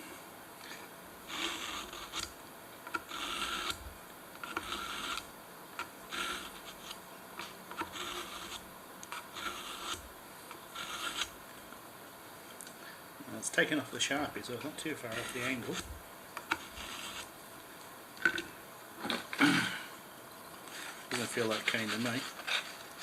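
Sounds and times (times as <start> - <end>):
knife blade rasping on sharpener: 1.3 - 2.3, 2.9 - 3.8, 4.4 - 5.3, 6.1 - 10.0, 10.7 - 11.3, 15.1 - 17.3.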